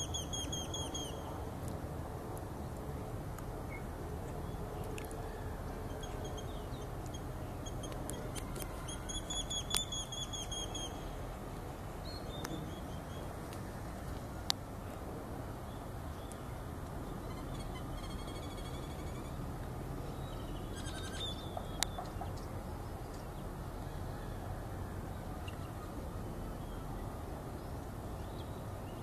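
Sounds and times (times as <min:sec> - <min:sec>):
songbird chirping: 0:03.6 - 0:11.4, 0:20.0 - 0:24.4.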